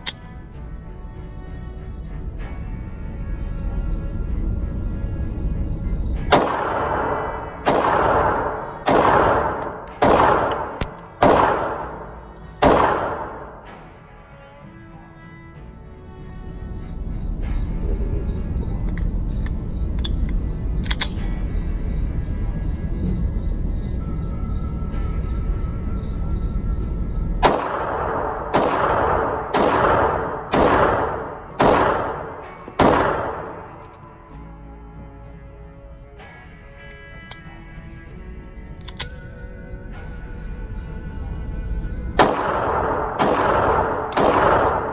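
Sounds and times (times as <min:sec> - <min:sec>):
pistol shots echoing: 0:06.3 - 0:13.7, 0:27.4 - 0:33.9, 0:42.2 - 0:44.9.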